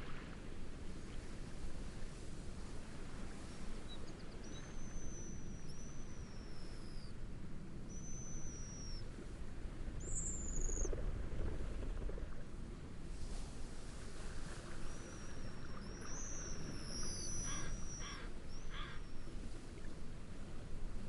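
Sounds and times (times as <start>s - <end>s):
bird whistled calls: 4.4s - 7.1s, 7.9s - 9.0s, 14.9s - 19.2s
wind and waves rushing: 10.9s - 18.6s.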